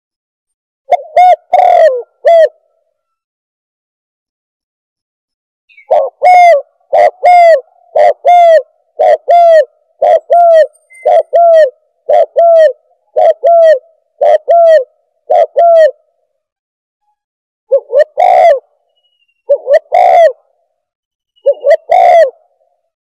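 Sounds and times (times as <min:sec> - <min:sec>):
dove cooing: 0:00.9 - 0:03.2, 0:05.8 - 0:16.1, 0:17.7 - 0:18.8, 0:19.4 - 0:20.6, 0:21.4 - 0:22.8.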